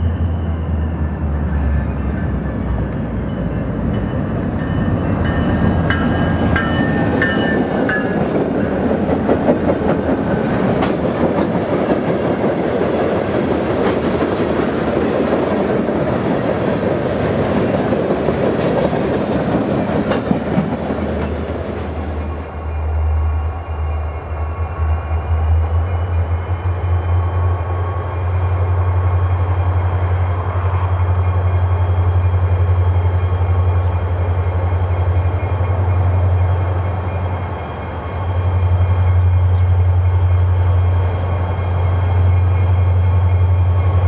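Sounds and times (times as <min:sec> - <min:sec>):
train wheels rumbling on rail: 0:00.0 - 0:44.0
train wheel clacks: 0:03.8 - 0:22.3.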